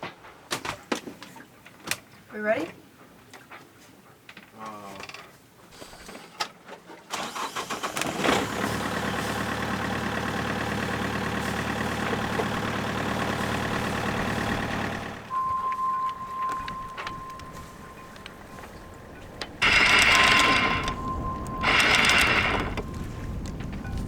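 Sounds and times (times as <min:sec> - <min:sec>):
boat engine cranking and idling: 0:07.1 - 0:24.0.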